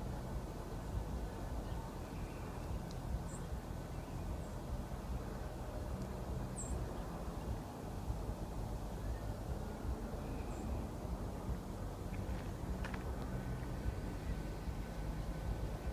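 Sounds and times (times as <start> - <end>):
small bird chirping: 2.0 - 4.6, 6.5 - 7.6, 10.1 - 10.9.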